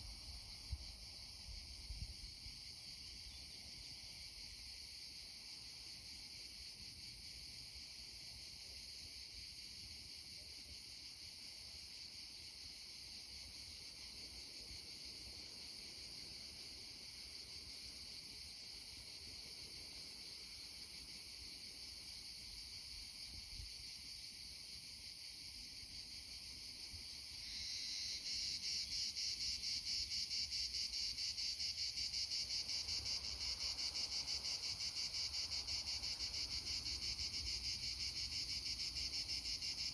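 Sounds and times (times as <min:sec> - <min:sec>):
insects chirring: 0:26.7 - 0:39.9.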